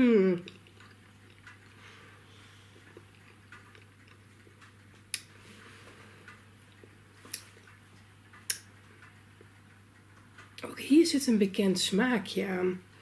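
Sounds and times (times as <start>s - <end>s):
quiet chewing: 0.4s - 10.7s.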